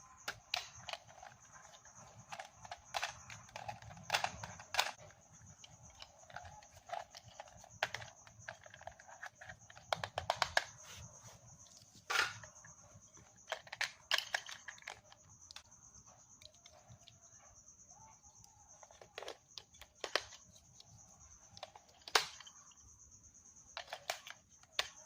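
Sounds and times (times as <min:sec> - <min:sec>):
packaging clicks and rustles: 0:00.1 - 0:15.7.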